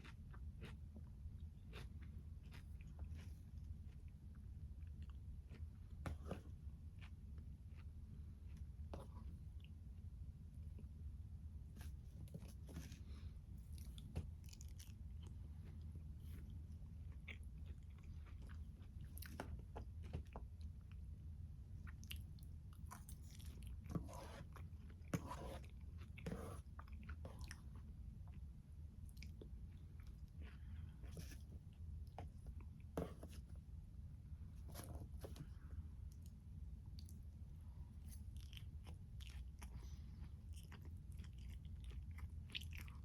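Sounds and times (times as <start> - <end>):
chewing and biting food: 0.0 - 9.8, 13.6 - 21.0, 21.8 - 28.5, 38.0 - 43.0
steady low hum: 0.0 - 43.0.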